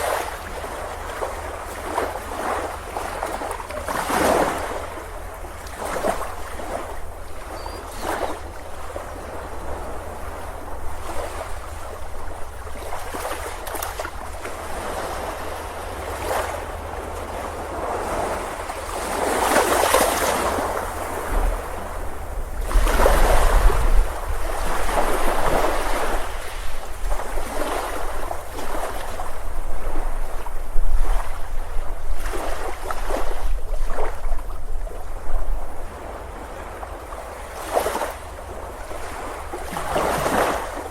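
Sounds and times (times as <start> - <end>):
ocean surf breaking: 0.0 - 31.4
wind rumble on microphone: 0.0 - 40.9.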